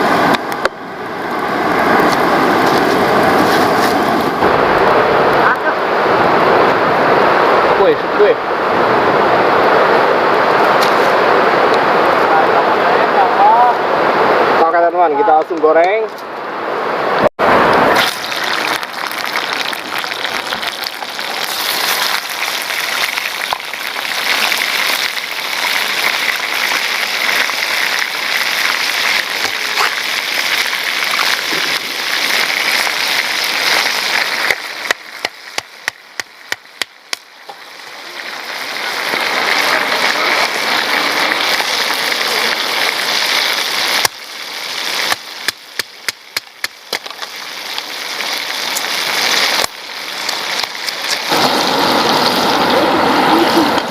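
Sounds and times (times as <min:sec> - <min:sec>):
oil popping and crackling: 0:00.0 - 0:04.4, 0:17.9 - 0:53.9
oil sizzling: 0:17.8 - 0:53.9.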